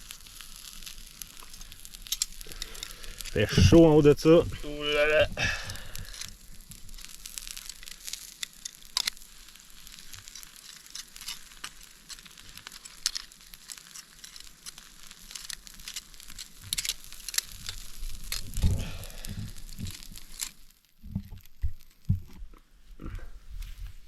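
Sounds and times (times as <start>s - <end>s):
meat sizzling in butter: 0.0s - 22.1s
campfire crackling with pops: 0.0s - 23.3s.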